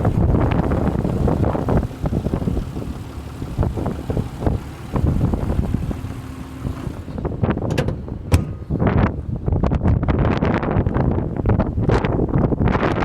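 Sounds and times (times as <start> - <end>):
car engine idling faintly: 0.0 - 9.9
wind buffeting microphone: 0.0 - 13.0.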